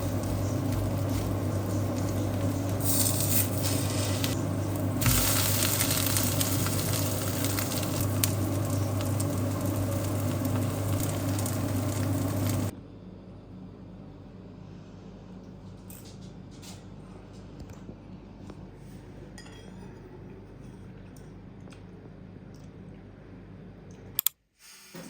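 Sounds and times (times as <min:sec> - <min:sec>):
batter sizzling in oil: 0:00.0 - 0:12.7
steady low hum: 0:00.0 - 0:24.2.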